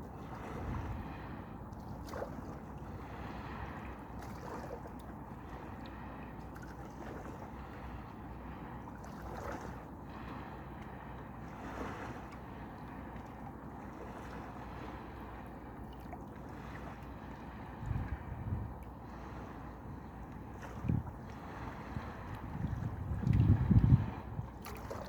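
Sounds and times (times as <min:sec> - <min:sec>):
wind buffeting microphone: 0:00.0 - 0:01.3, 0:17.6 - 0:18.8, 0:20.6 - 0:25.0
gentle sea waves at shore: 0:00.0 - 0:25.0.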